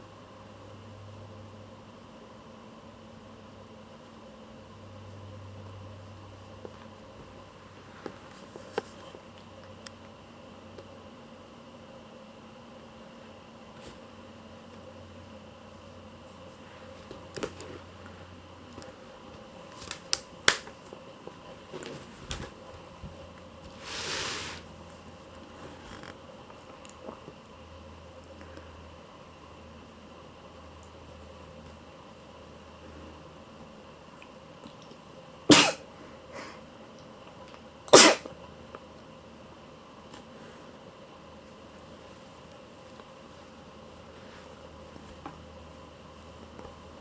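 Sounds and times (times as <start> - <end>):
faint room hum: 0.0 - 47.0
person sneezing: 35.5 - 36.6, 37.9 - 38.3.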